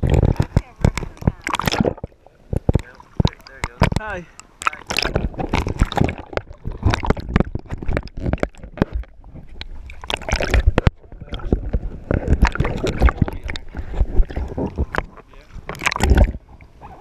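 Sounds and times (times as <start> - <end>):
knocks and splashes: 0.0 - 17.0
water slapping against boat hull: 0.0 - 17.0.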